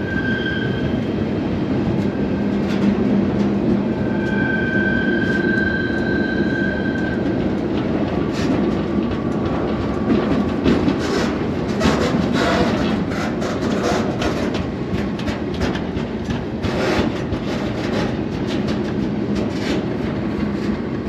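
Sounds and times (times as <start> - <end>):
high wheel squeal: 0.0 - 1.0, 4.0 - 7.2
train wheels rumbling on rail: 0.0 - 21.0
sharp clicks and knocks: 7.2 - 20.8.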